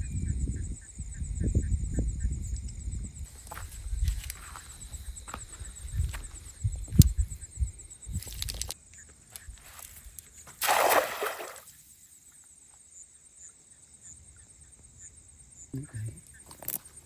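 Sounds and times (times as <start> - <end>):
water splash: 10.6 - 11.8.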